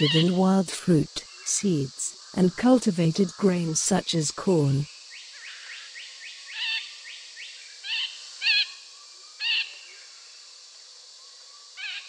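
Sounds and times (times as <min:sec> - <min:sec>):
background hiss: 0:00.0 - 0:12.0
loud wavering bird calls: 0:05.3 - 0:08.8, 0:09.4 - 0:10.1, 0:11.8 - 0:12.0.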